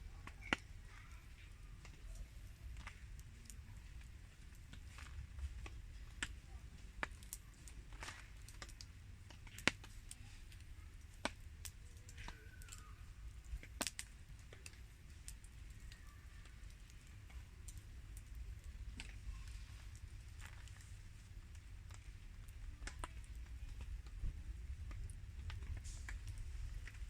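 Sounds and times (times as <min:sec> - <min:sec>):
campfire crackling and popping: 0:00.0 - 0:27.0
low steady rumble: 0:13.0 - 0:27.0.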